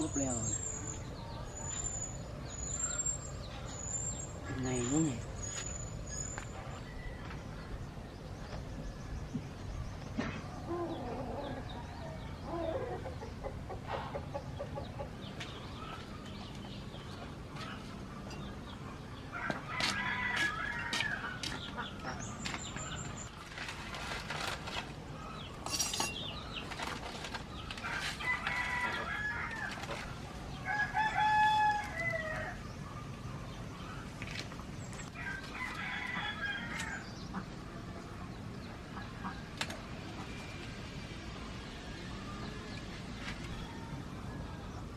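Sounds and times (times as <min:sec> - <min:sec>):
chickens clucking: 0:12.4 - 0:20.5, 0:21.2 - 0:24.5
rooster crowing: 0:19.3 - 0:21.4, 0:27.9 - 0:32.7, 0:35.1 - 0:37.1.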